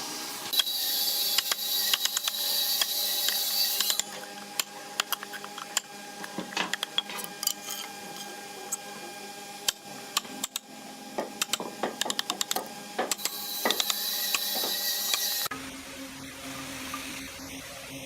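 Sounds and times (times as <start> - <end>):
sharp clicks and taps: 11.2 - 14.4.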